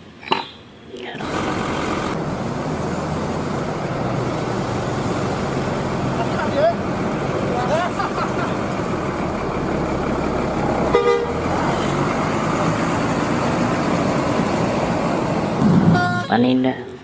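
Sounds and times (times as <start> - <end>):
road traffic noise: 0.0 - 17.0
vehicle horn tooting: 10.9 - 11.4, 15.9 - 16.4.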